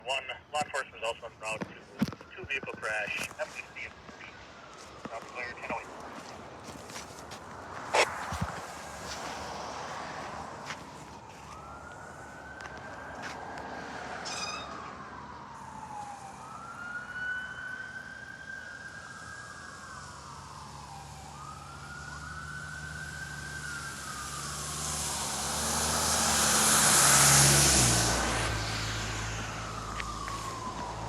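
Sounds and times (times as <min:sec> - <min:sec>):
siren wailing: 0:00.0 - 0:07.0, 0:07.9 - 0:31.0
truck engine and tyres passing: 0:04.0 - 0:16.8, 0:21.4 - 0:31.0.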